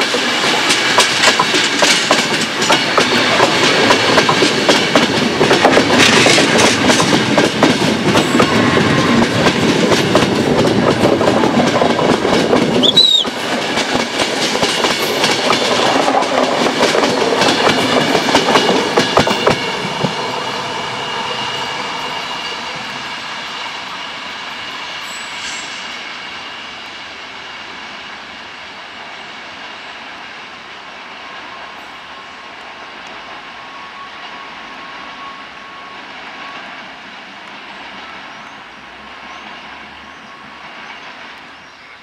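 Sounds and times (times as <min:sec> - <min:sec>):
train wheels rumbling and clacking: 0:00.0 - 0:41.9
brief high squeal: 0:12.8 - 0:13.3, 0:25.1 - 0:26.0.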